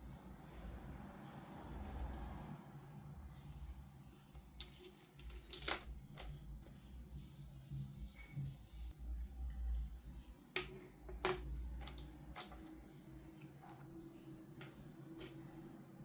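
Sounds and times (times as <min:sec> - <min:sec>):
rubbing and handling noise: 0:00.0 - 0:09.0.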